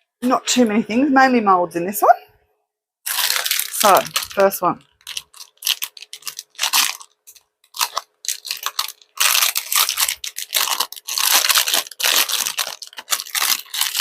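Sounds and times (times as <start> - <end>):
plastic packaging crinkling: 3.1 - 14.0.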